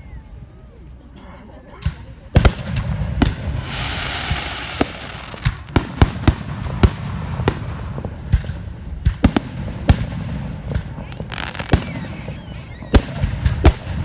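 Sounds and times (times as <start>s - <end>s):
fireworks banging: 1.8s - 14.0s
firework cracks and pops: 2.4s - 14.0s
firework hissing spray: 3.3s - 7.9s.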